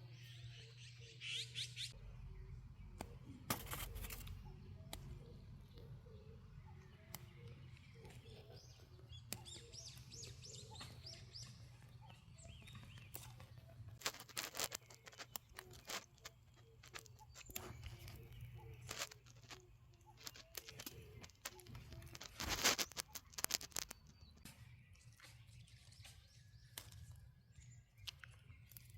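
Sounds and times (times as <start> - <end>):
birds chirping: 0.0 - 28.9
rustles: 3.5 - 4.5, 12.8 - 24.2.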